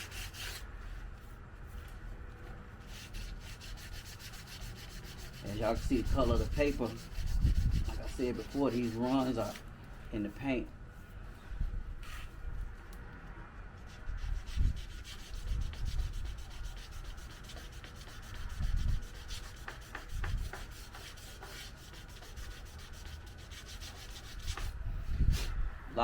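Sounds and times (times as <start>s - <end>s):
sandpaper rubbing on car bodywork: 2.8s - 9.6s, 13.8s - 24.8s.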